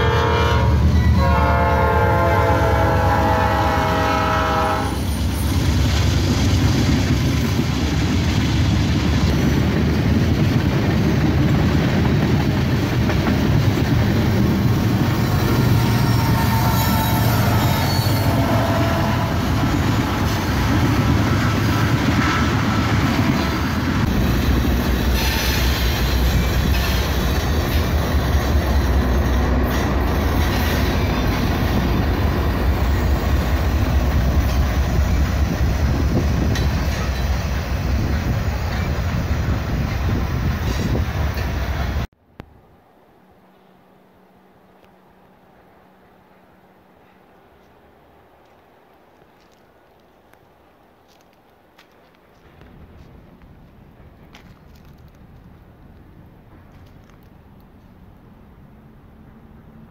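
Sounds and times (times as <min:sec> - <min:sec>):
train wheels rumbling on rails: 0:00.0 - 0:42.1, 0:51.1 - 0:59.9
diesel locomotive deep rumble: 0:00.0 - 0:42.2
faint wheel squeal: 0:15.2 - 0:18.6.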